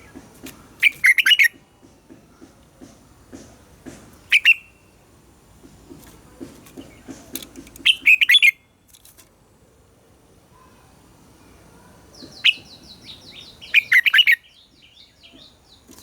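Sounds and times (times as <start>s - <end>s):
bird singing clear notes: 0.8s - 1.6s, 4.2s - 5.0s, 6.8s - 8.7s, 10.5s - 16.0s.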